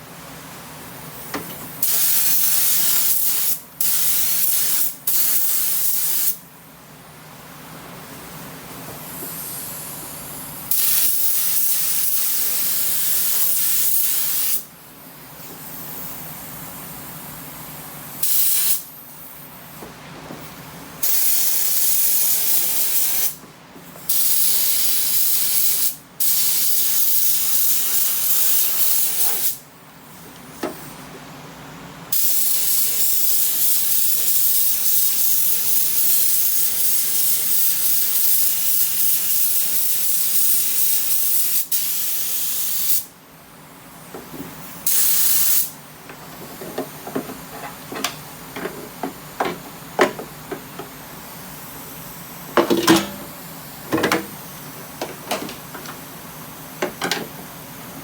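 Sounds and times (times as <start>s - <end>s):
spray gun hissing: 44.8s - 45.8s.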